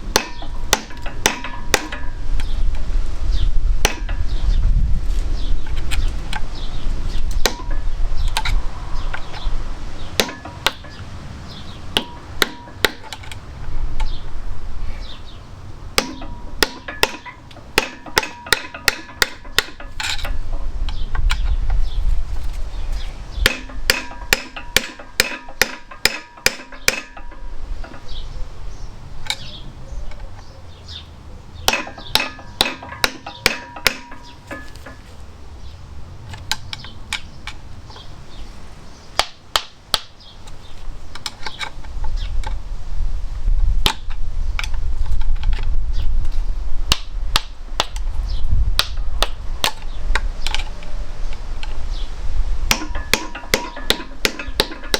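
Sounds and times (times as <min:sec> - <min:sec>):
hammer striking metal: 0:00.1 - 0:02.2, 0:03.8 - 0:04.3, 0:07.4 - 0:07.9, 0:10.2 - 0:11.0, 0:12.0 - 0:13.2, 0:16.0 - 0:20.4, 0:23.4 - 0:28.2, 0:31.7 - 0:35.1, 0:52.7 - 0:54.9.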